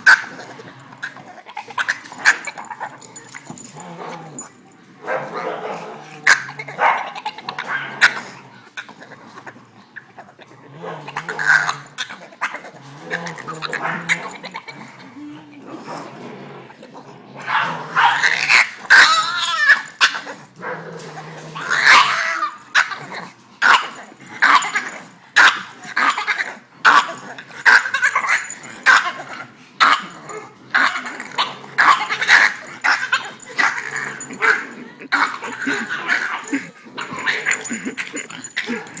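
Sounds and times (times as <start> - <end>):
dog yipping barking and whining: 18.0 - 20.3.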